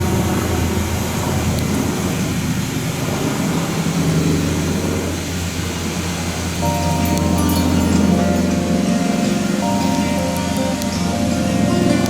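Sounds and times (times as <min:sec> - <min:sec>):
vehicle engine humming: 0:00.0 - 0:12.0
music: 0:06.6 - 0:12.0.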